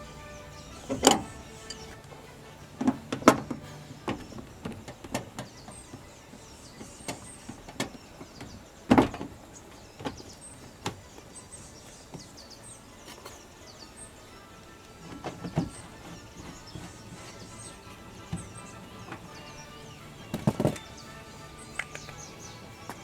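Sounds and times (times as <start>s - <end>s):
small birds chirping: 0.0s - 23.0s
sharp knocks and clicks: 21.7s - 23.0s.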